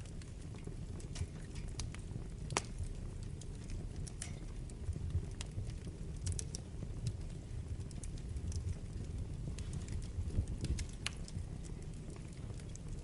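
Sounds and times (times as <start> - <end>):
wood fire crackling and popping: 0.0 - 13.0.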